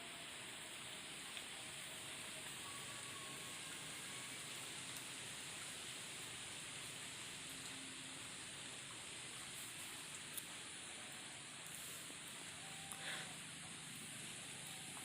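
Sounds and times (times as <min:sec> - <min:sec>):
stream flowing: 0:00.0 - 0:15.0
faint high tones: 0:01.6 - 0:04.6, 0:12.4 - 0:15.0.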